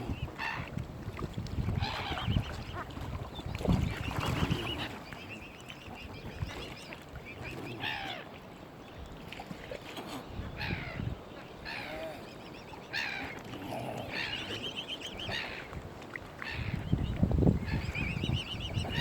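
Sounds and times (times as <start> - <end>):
waterfowl calling: 1.8 - 3.1, 3.8 - 8.4, 9.7 - 15.8, 16.4 - 19.0.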